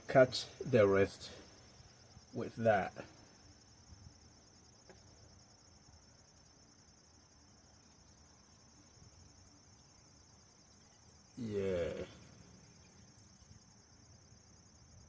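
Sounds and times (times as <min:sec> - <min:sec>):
faint high insect trill: 0:00.0 - 0:15.0.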